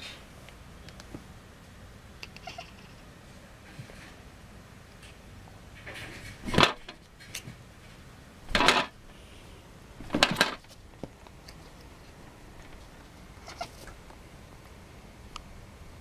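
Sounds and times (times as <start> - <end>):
faint small clicks: 0.4 - 1.2, 2.2 - 2.6
kitten making sharp noises: 2.3 - 2.9.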